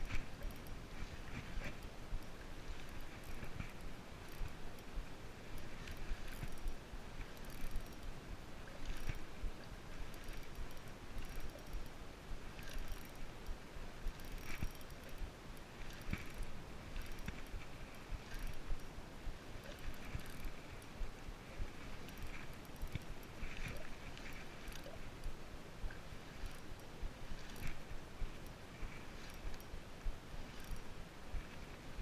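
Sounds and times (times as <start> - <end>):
fishing reel whirring: 0.0 - 9.3, 10.0 - 11.9, 12.6 - 19.0, 19.6 - 20.8, 21.8 - 31.7
small clicks and knocks: 5.8 - 8.1, 8.8 - 9.2, 12.6 - 17.6, 30.5 - 30.8.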